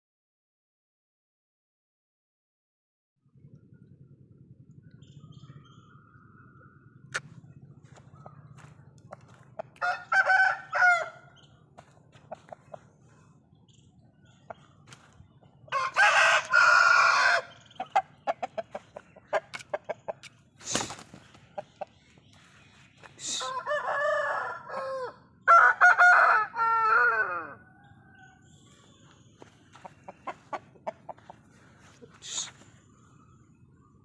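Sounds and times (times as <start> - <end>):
chickens clucking and chirping: 3.3 - 25.9, 26.6 - 34.0
roosters crowing: 8.4 - 12.7, 15.0 - 19.9, 23.1 - 29.0.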